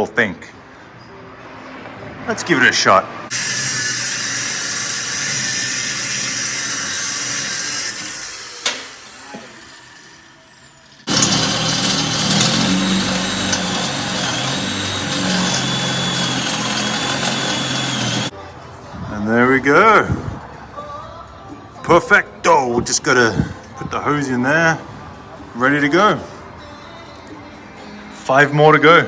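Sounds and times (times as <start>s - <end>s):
power tool grinding metal: 3.3s - 18.3s.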